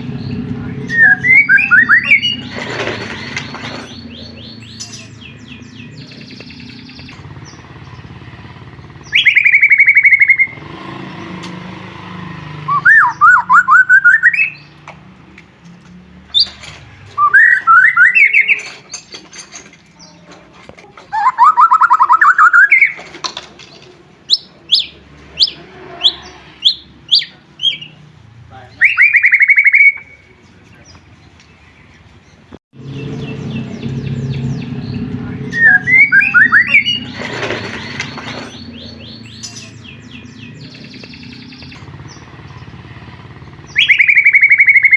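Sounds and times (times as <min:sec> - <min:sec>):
bird singing rapid trills: 0:00.0 - 0:14.8, 0:16.3 - 0:20.3, 0:21.1 - 0:23.1, 0:24.2 - 0:44.9.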